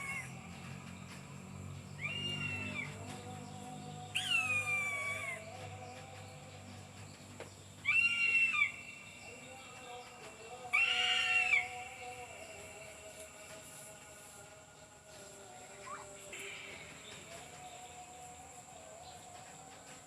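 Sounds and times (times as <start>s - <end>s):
eagle calling: 0.0s - 0.4s, 2.0s - 3.1s, 4.1s - 5.6s, 7.8s - 9.4s, 10.7s - 12.1s.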